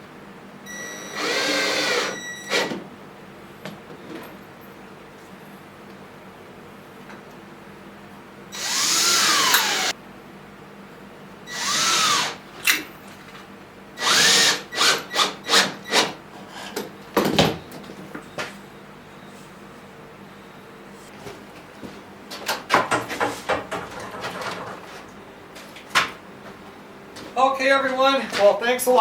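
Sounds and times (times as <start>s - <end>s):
electric drill whirring: 0.8s - 2.8s, 8.6s - 9.9s, 11.5s - 12.4s, 14.0s - 16.1s.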